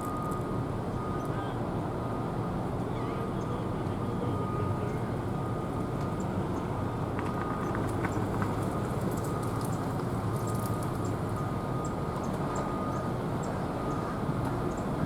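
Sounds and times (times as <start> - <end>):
port and traffic rumble: 0.0 - 15.0.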